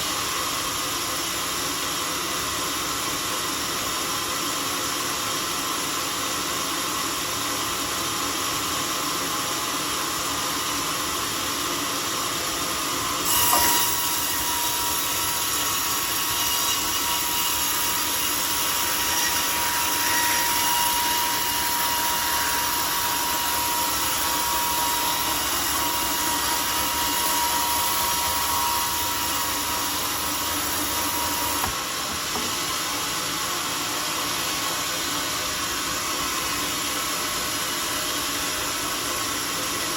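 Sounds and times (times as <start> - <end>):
sawmill sawing a log: 12.0 - 38.8
high saw blade whine: 12.3 - 39.9.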